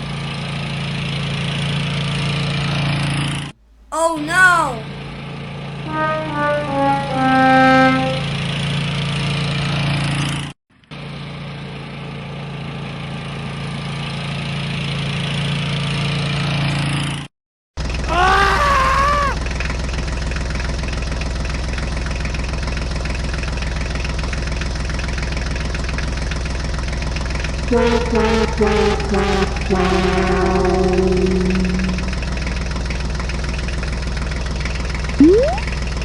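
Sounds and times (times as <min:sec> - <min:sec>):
engine idling with fast pulsing: 0:19.4 - 0:36.0
wavering whistle-like tone: 0:29.8 - 0:32.4, 0:35.2 - 0:35.7.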